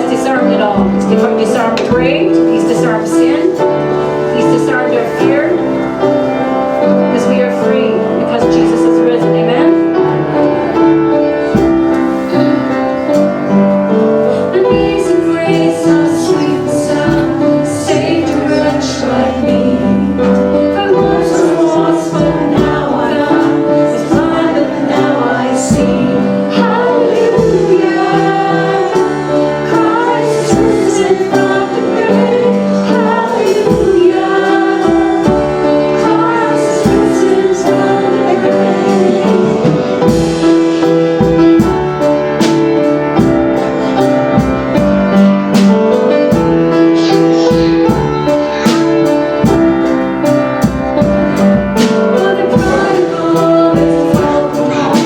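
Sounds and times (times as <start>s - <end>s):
woman singing: 0.0s - 5.8s, 6.9s - 9.8s, 14.3s - 40.2s, 51.8s - 55.0s
voices singing: 0.0s - 44.9s, 46.7s - 55.0s
keyboard: 0.0s - 55.0s
steady drum beat: 0.0s - 55.0s.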